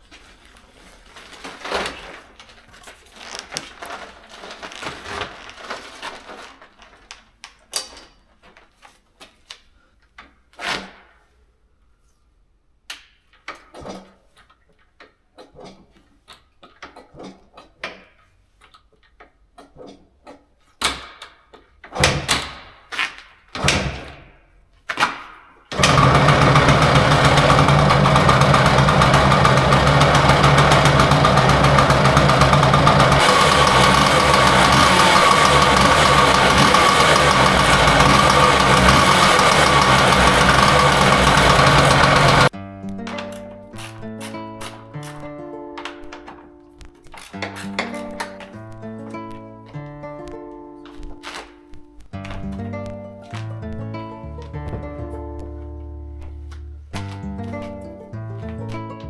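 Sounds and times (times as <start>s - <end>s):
knocks and clatter: 25.8s - 42.5s
two-stroke engine running: 25.8s - 42.5s.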